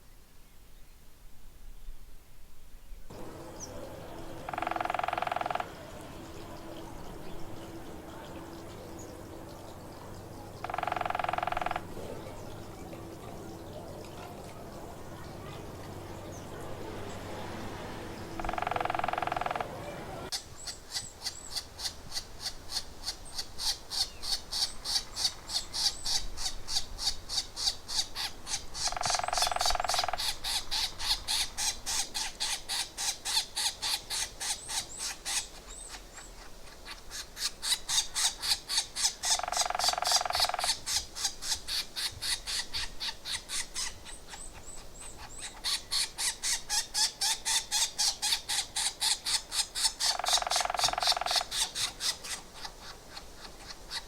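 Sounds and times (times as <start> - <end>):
birds calling with high repeated notes: 2.9 - 54.0
harsh bird squawking: 3.2 - 7.0, 10.6 - 12.6, 18.2 - 21.1, 23.6 - 32.0, 45.2 - 53.0.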